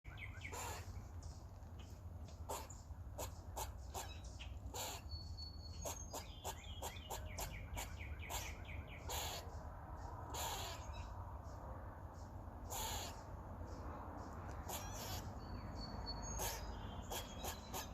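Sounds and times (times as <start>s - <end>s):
squirrel clicks and chirps: 0.1s - 17.9s
squirrel rasping bursts: 0.4s - 1.0s, 2.4s - 5.1s, 5.7s - 11.2s, 12.6s - 13.6s, 14.4s - 15.4s, 16.3s - 17.9s.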